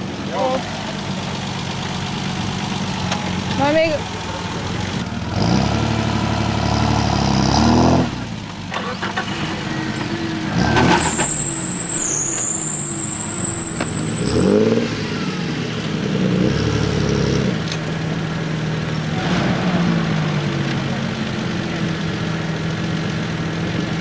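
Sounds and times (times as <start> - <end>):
engine revving under load: 4.4 - 21.2.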